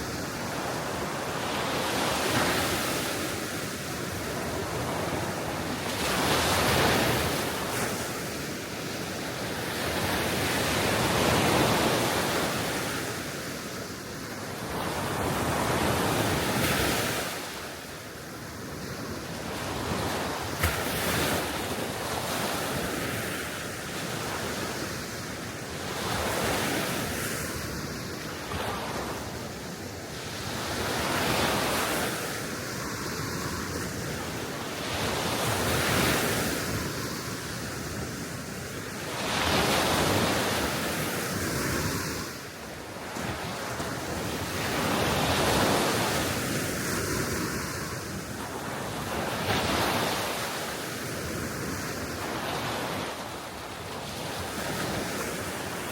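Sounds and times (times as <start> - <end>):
small waves breaking on shore: 0.0 - 55.9.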